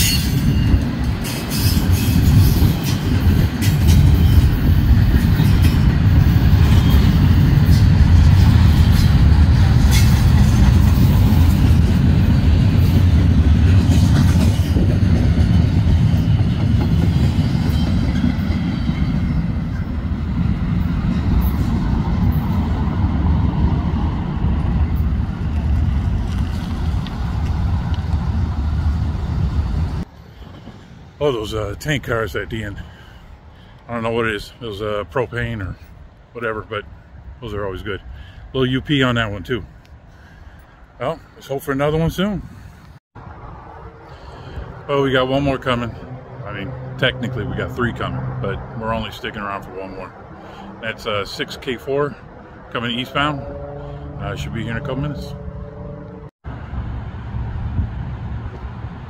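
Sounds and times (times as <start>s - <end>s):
clicks of train wheels: 0.0s - 12.0s
freight train wheels rumbling: 0.0s - 34.6s.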